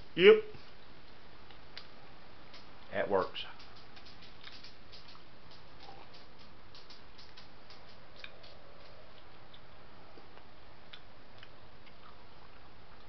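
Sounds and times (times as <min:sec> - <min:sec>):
background hiss: 0:00.0 - 0:13.0
mouth clicks: 0:03.4 - 0:12.2
person chewing: 0:04.1 - 0:13.0.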